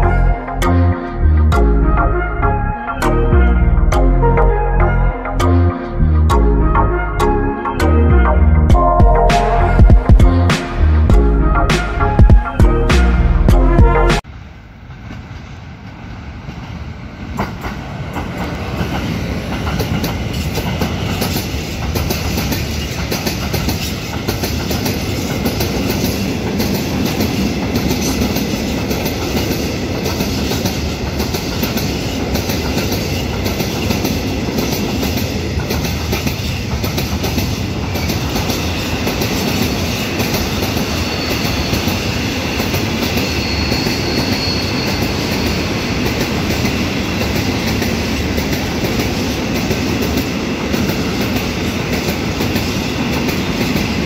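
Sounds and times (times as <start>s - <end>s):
freight train passing: 0.0s - 54.0s
high wheel squeal: 38.0s - 46.4s.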